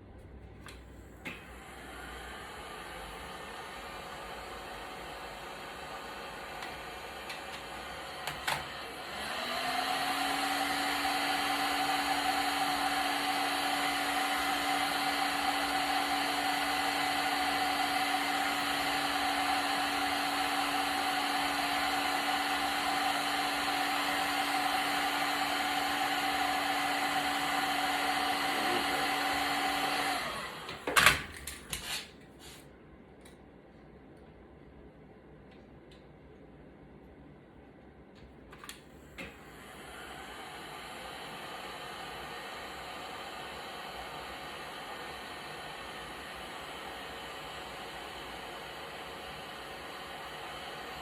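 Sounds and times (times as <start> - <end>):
electric fan motor whirring: 1.2 - 31.2, 39.2 - 51.0.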